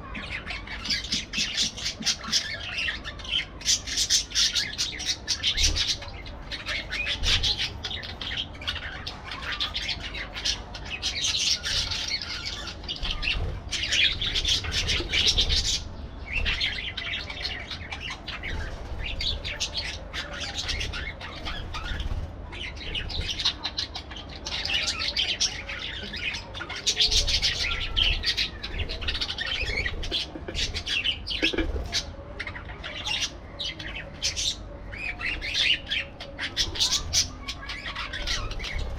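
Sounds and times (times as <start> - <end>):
parakeets chattering and squawking: 0.0 - 38.9.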